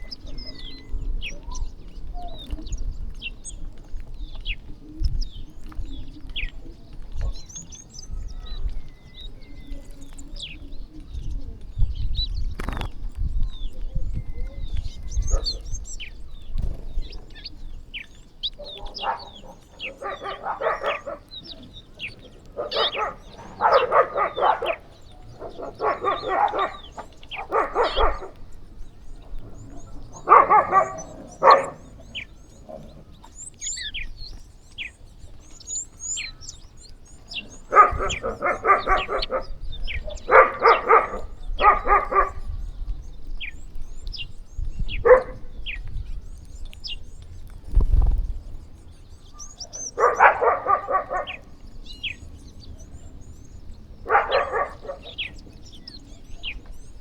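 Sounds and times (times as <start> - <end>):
small birds chirping: 0.0 - 57.0
loud harsh bird calls: 12.6 - 12.9, 17.3 - 28.4, 29.6 - 34.1, 35.6 - 42.8, 49.3 - 57.0.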